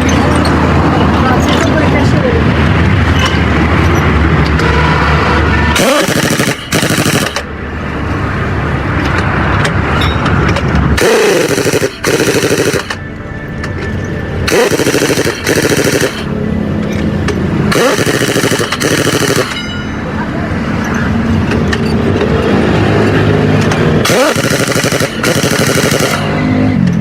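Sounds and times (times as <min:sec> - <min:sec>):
engine hum: 0:00.0 - 0:27.0
air impact wrench rattling: 0:05.7 - 0:07.5, 0:09.0 - 0:13.0, 0:14.4 - 0:19.7, 0:23.6 - 0:26.5.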